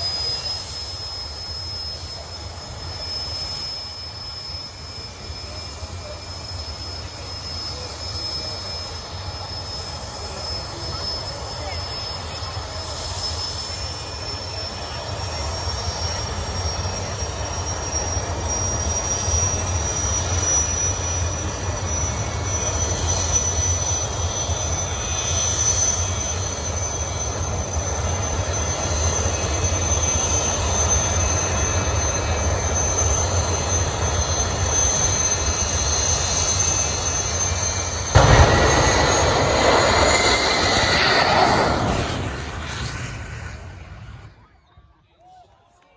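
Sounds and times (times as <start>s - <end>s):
turbine engine whine: 0.0s - 44.8s
engine rough blast: 36.2s - 44.4s
low rumble: 38.1s - 44.4s.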